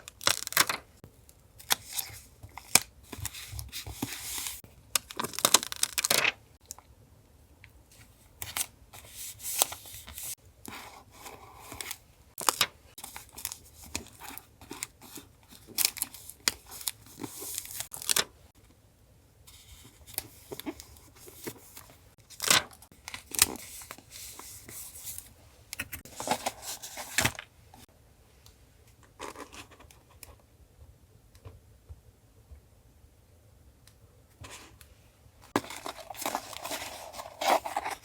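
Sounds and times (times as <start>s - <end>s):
paper tearing and rustling: 35.6s - 38.0s.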